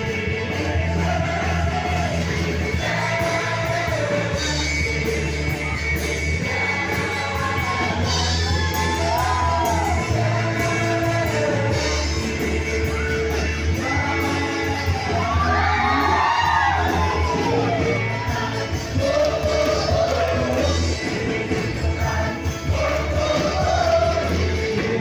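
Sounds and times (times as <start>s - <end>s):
bass line: 0.0s - 25.0s
song with singing voice: 0.0s - 25.0s
drum beat: 13.8s - 25.0s.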